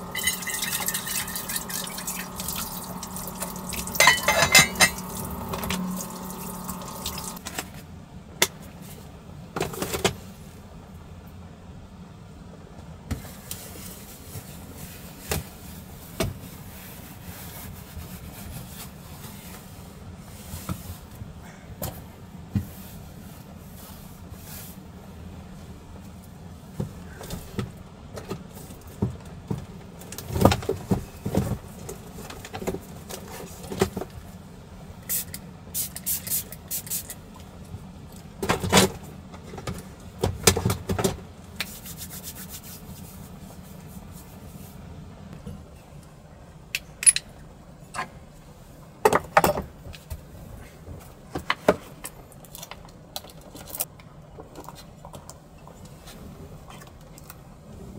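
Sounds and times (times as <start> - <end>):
objects being handled: 0.0 - 7.7.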